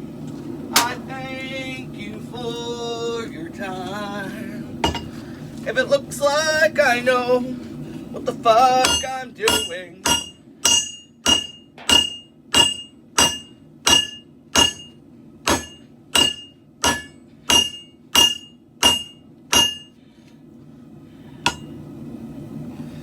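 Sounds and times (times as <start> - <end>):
hammer blows on steel on anvil: 8.8 - 19.9.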